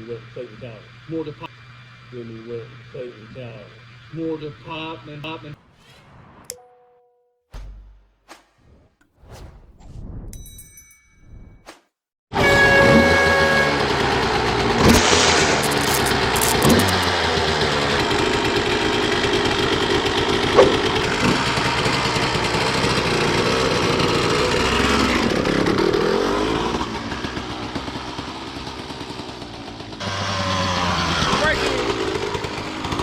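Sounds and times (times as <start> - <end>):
motorcycle engines revving: 0.0 - 5.6, 12.4 - 33.0.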